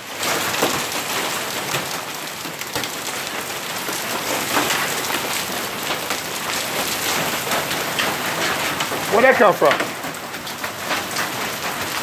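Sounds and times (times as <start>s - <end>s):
hail pelting hard surfaces: 0.0s - 12.0s.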